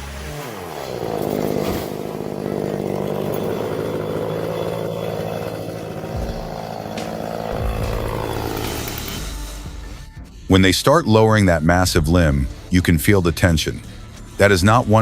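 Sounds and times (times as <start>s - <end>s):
chainsaw engine running: 0.0s - 9.9s.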